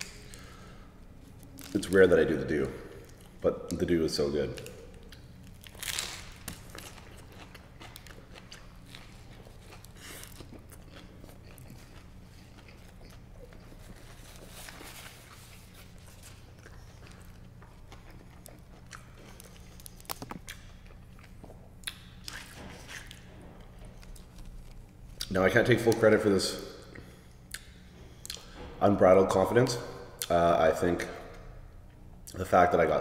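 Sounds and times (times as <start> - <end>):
low steady hum: 0.0 - 33.0
person chewing sandwich: 4.6 - 25.3.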